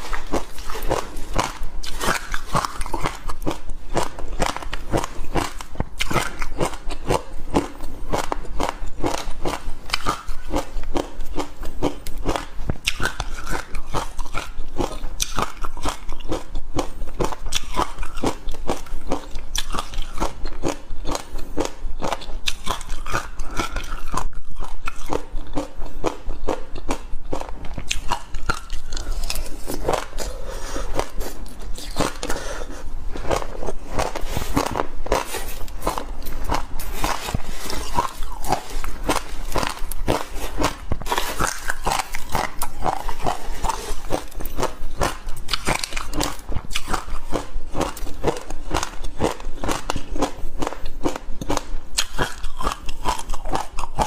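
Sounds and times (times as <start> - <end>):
crisp crunching while chewing: 0.0 - 54.0.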